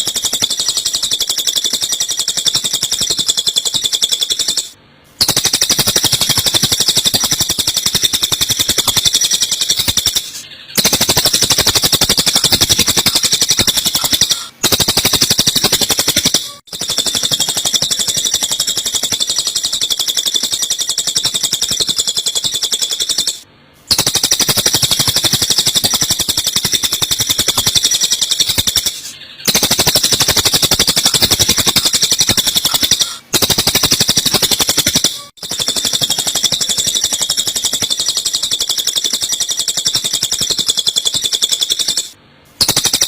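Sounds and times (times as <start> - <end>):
sparrows chirping rapidly: 5.3 - 33.5.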